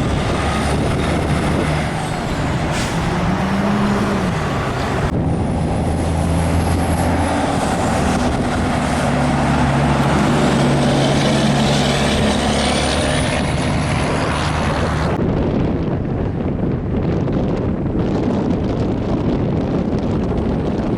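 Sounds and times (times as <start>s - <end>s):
diesel truck engine: 0.0s - 20.9s
road noise: 0.0s - 20.9s.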